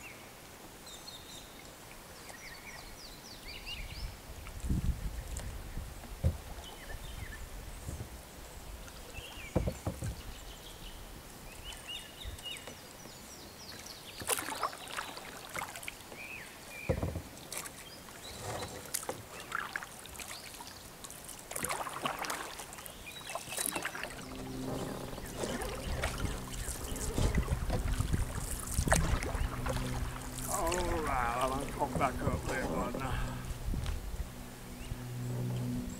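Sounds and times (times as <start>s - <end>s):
paddle splashing in water: 13.7s - 33.8s.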